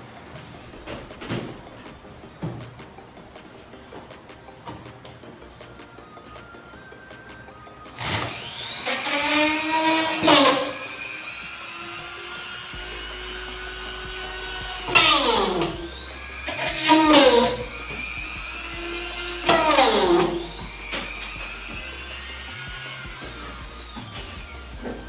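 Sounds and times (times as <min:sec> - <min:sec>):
electric drill whining: 0:05.4 - 0:25.0.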